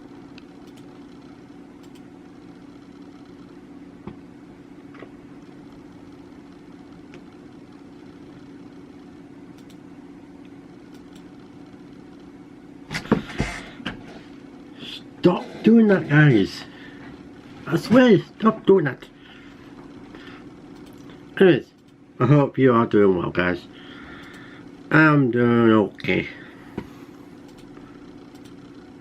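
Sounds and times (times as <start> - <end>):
mechanical hum: 0.0 - 29.0
faint clicks: 1.8 - 2.1, 9.5 - 9.8, 20.7 - 22.0, 24.2 - 24.4.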